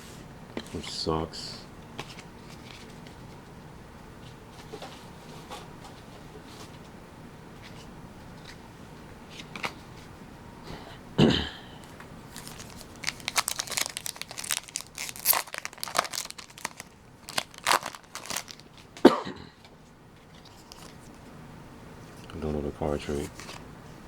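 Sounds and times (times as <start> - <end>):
person coughing: 11.2 - 11.8, 19.0 - 19.6
foil wrapper tearing and crinkling: 12.3 - 19.0.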